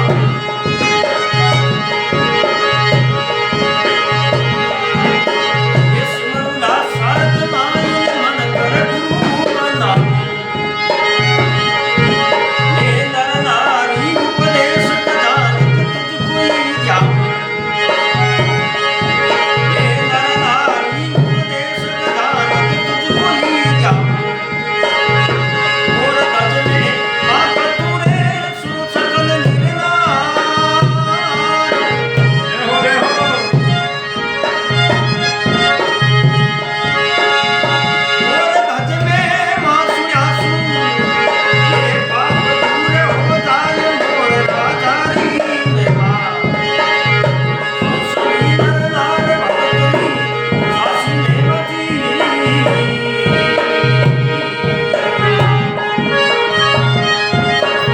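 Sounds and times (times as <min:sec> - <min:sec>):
harmonium melody: 0:00.0 - 0:57.9
hand drum beat: 0:42.2 - 0:57.9.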